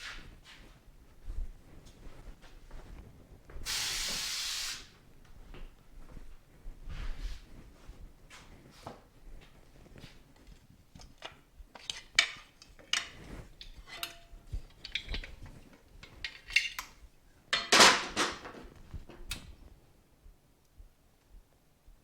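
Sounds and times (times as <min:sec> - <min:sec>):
metal parts clinking: 0:11.0 - 0:18.5.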